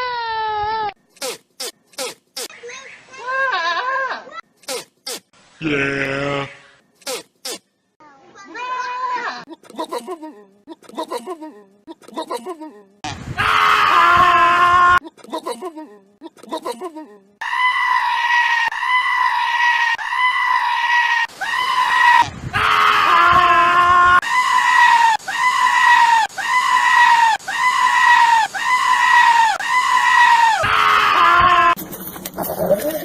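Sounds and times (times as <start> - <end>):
goat screaming: 3.2 - 4.4, 8.5 - 9.5, 17.4 - 31.8.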